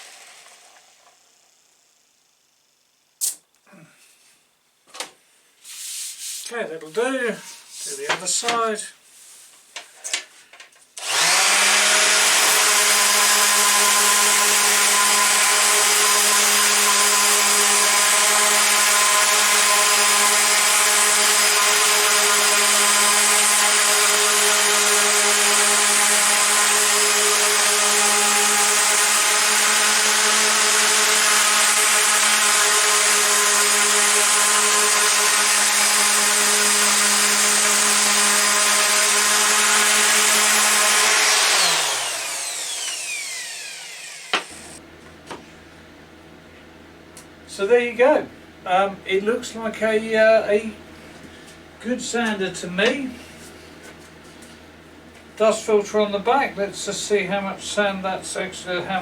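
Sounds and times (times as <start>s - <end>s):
orbital sander sanding wood: 11.0s - 44.8s.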